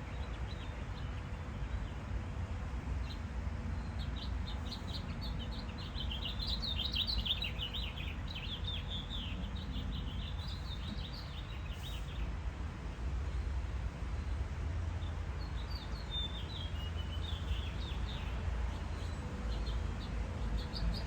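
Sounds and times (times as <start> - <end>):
small birds twittering: 3.0 - 12.4, 15.0 - 21.0.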